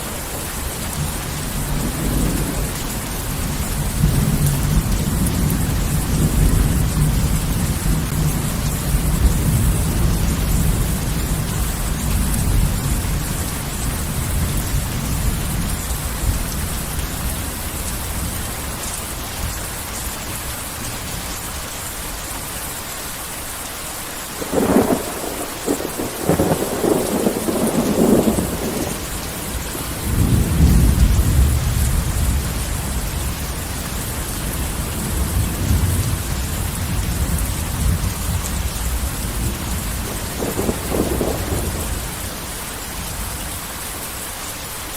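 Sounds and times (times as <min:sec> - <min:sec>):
heavy rain falling: 0:00.0 - 0:44.9
rolling thunder: 0:24.4 - 0:43.2
close thunderclap crackling: 0:24.4 - 0:43.3.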